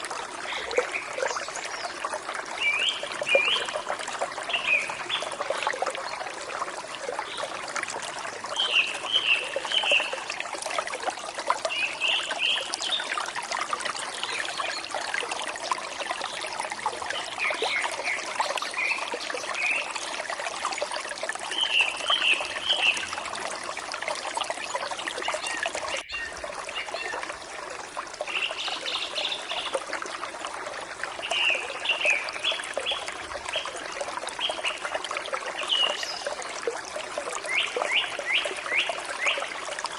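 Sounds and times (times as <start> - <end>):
forest stream flowing: 0.0 - 39.9
birds chirping: 25.2 - 27.2.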